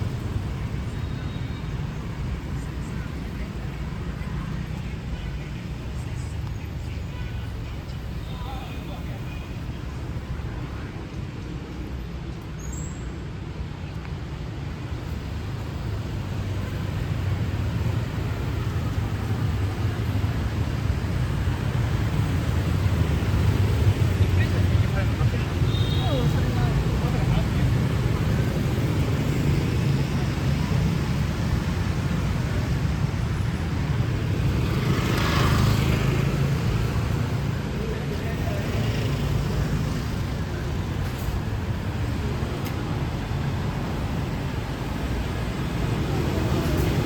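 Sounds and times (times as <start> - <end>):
passing vehicles rumble: 0.0 - 47.0.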